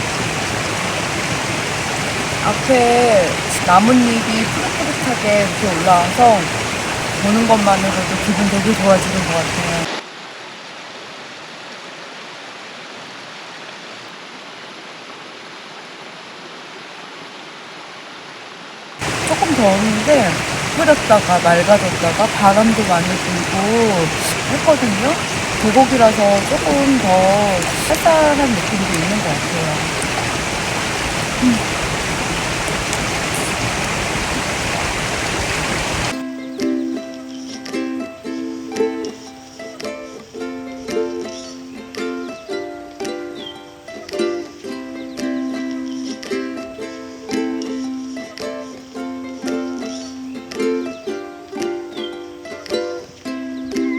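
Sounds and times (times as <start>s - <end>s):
stream flowing: 0.0s - 53.9s
ukulele music: 2.4s - 6.5s, 7.2s - 9.9s, 19.2s - 33.6s, 36.1s - 53.9s.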